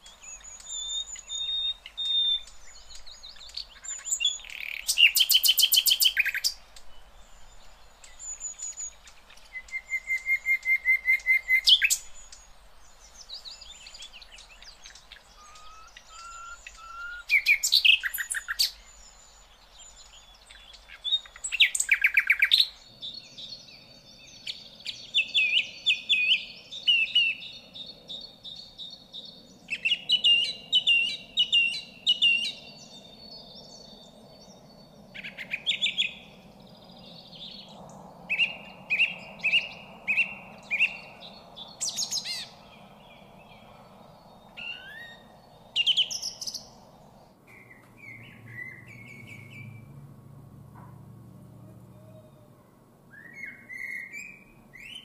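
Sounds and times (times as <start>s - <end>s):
birds chirping: 0.0s - 55.0s
harsh repeated bird calls: 14.8s - 18.8s, 47.5s - 50.1s
low hum: 42.5s - 53.1s.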